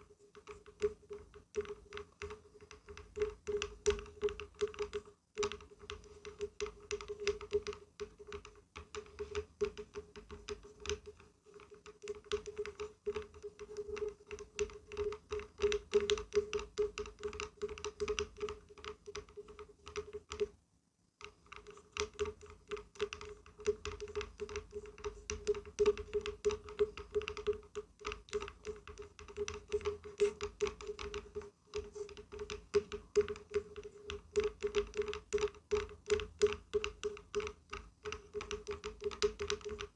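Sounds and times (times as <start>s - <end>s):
rapid tapping on wood: 0.0s - 20.5s, 21.2s - 39.9s.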